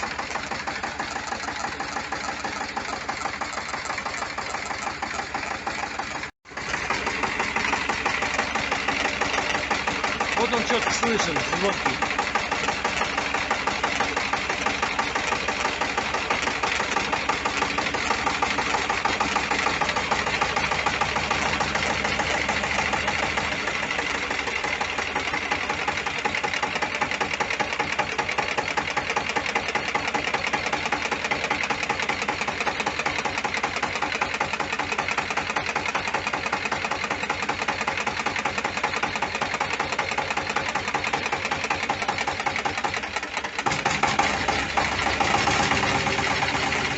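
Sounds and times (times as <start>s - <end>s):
engine idling: 0.0s - 46.9s.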